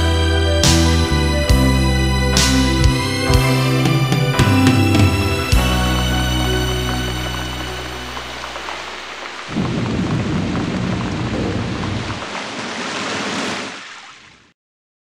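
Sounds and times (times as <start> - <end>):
thunder rumbling: 2.4 - 13.7
rain falling: 2.4 - 14.5.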